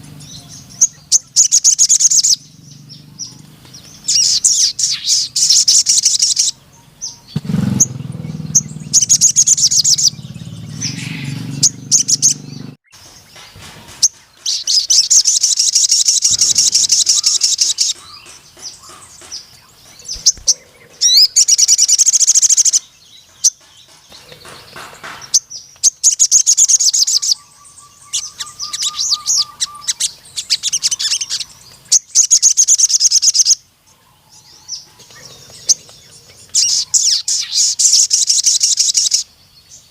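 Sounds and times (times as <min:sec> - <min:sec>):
bird high-pitched trilling: 0:00.0 - 0:13.0, 0:13.9 - 0:33.6, 0:34.4 - 0:39.3
low droning: 0:06.9 - 0:12.8.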